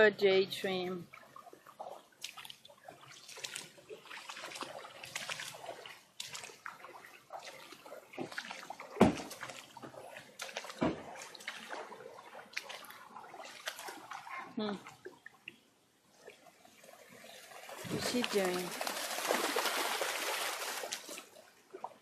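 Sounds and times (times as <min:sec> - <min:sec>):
floodwater splashing: 0:00.7 - 0:22.0
sharp splashes or knocks: 0:08.2 - 0:14.2, 0:17.7 - 0:21.3.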